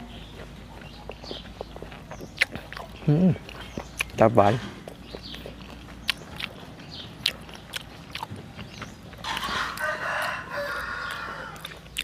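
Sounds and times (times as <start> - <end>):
chewing clicks: 0.2 - 12.0
rooster crowing: 9.2 - 11.7.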